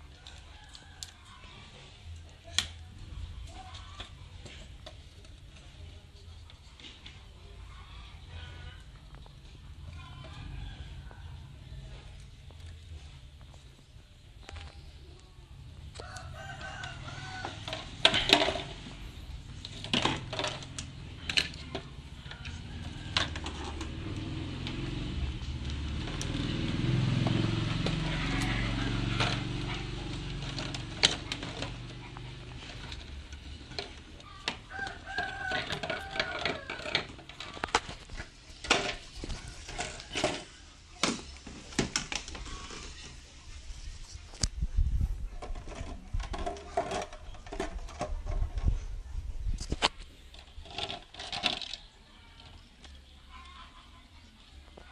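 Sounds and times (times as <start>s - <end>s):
rooster crowing: 0.2s - 1.7s, 10.0s - 11.6s, 15.9s - 18.0s, 22.1s - 24.8s, 27.4s - 29.8s, 34.2s - 37.7s.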